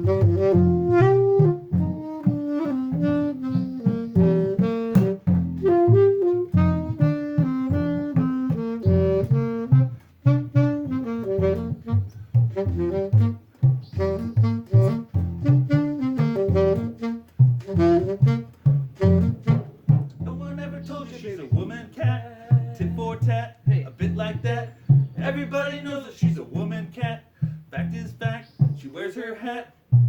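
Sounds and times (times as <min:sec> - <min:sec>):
instrumental melody over bass line: 0:00.0 - 0:28.9.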